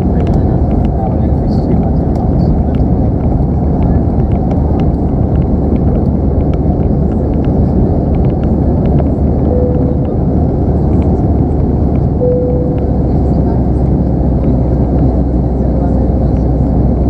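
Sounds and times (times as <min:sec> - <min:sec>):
airplane cabin engine rush: 0:00.0 - 0:17.0
brief steady tone: 0:09.5 - 0:10.4, 0:12.2 - 0:13.4.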